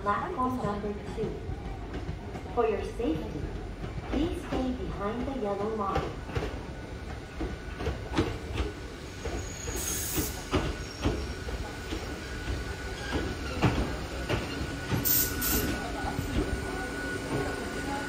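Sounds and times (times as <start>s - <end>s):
railcar whine: 0.0s - 18.0s.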